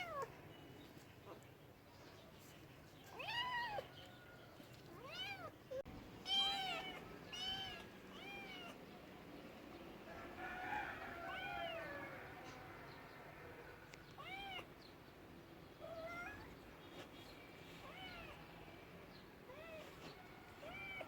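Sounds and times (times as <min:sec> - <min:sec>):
cat meowing: 0:06.2 - 0:08.8, 0:14.2 - 0:14.7, 0:15.8 - 0:16.6, 0:20.6 - 0:21.0.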